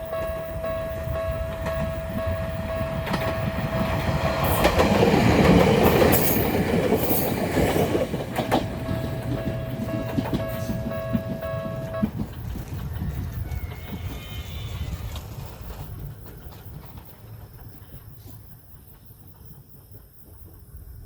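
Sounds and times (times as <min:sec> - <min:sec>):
level crossing warning bell: 0:00.0 - 0:05.0, 0:08.3 - 0:12.5
train rumble and wheel clatter: 0:00.0 - 0:21.0
high wheel squeals: 0:08.4 - 0:15.7.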